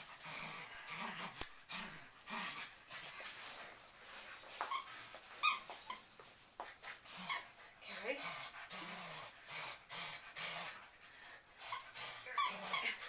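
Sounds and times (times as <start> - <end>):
dog whimpering: 11.7 - 13.0.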